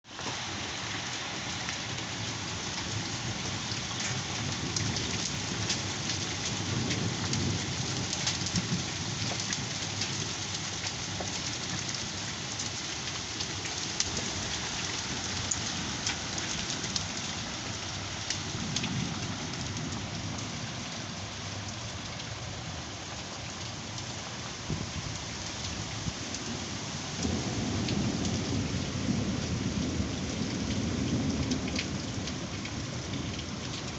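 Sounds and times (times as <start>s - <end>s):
heavy rain pouring: 0.0s - 33.9s
low thunder rumbles: 14.1s - 21.3s, 25.8s - 33.8s.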